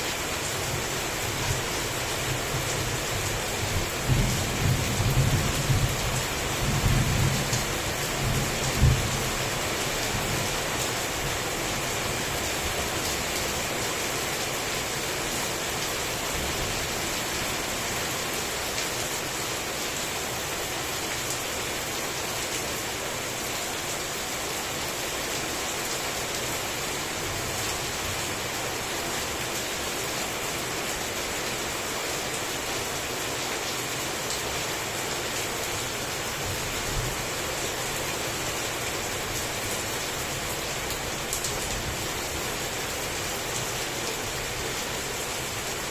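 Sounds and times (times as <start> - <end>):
heavy rain falling: 0.0 - 45.9.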